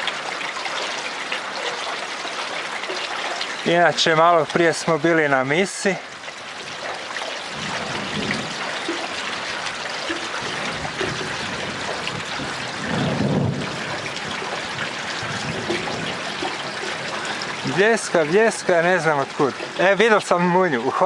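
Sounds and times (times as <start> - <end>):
rain falling: 0.0 - 21.0
thunder rumble: 7.5 - 17.8.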